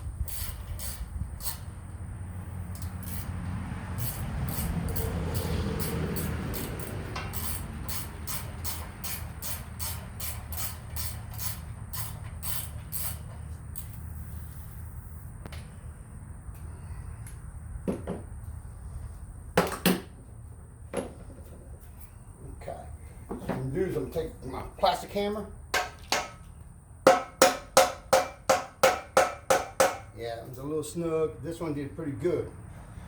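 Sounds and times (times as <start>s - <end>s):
ratchet wrench clicking: 0.2s - 1.8s, 2.6s - 3.4s, 4.0s - 14.0s.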